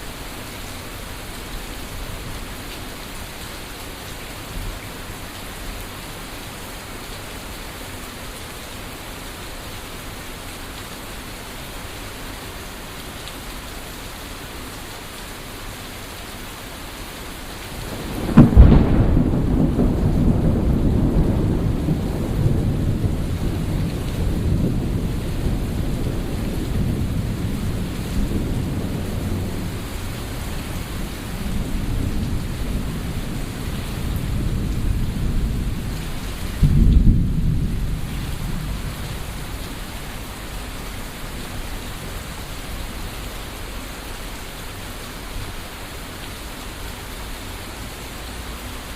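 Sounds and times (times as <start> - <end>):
heavy rain: 0.0 - 48.9
thunderclap and rolling thunder: 17.8 - 41.8.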